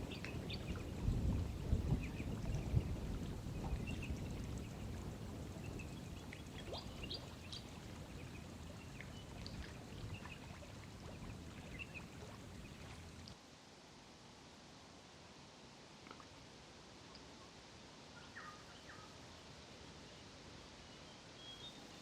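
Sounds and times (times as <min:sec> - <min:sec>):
bird chirps: 0:21.4 - 0:22.0.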